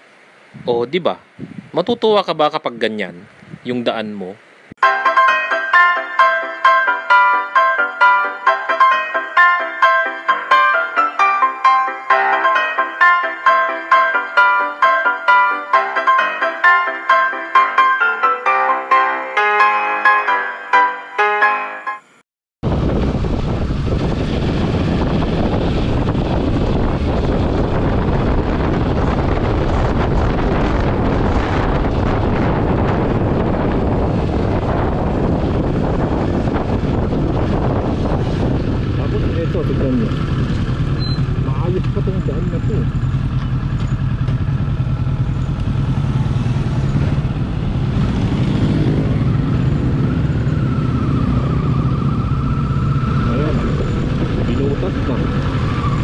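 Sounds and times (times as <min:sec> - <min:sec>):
wind rushing over microphone: 0:00.5 - 0:02.2, 0:03.2 - 0:03.9, 0:22.6 - 0:56.0
motorcycle engine: 0:22.6 - 0:56.0
road noise: 0:22.6 - 0:56.0.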